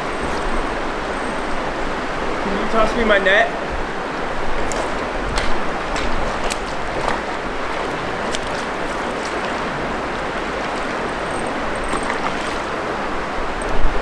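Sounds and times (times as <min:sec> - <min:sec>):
river water rushing: 0:00.0 - 0:14.0
faint ticks: 0:08.3 - 0:12.9, 0:13.5 - 0:14.0.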